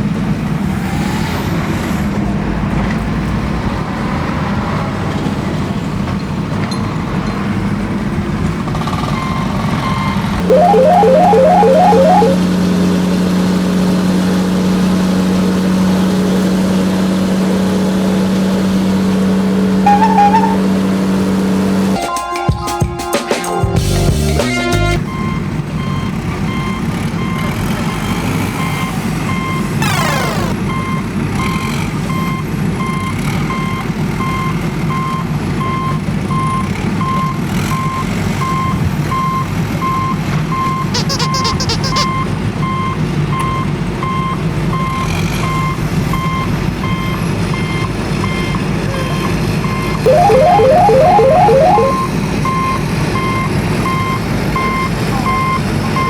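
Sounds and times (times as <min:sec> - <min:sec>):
truck reversing alarm beeps: 0:09.1 - 0:12.6, 0:19.8 - 0:21.0, 0:25.0 - 0:56.0
falling whistle: 0:10.5 - 0:12.4, 0:19.9 - 0:20.8, 0:41.0 - 0:42.1
short warbling tone: 0:10.5 - 0:12.6, 0:19.8 - 0:20.8, 0:41.0 - 0:42.1, 0:50.1 - 0:52.2.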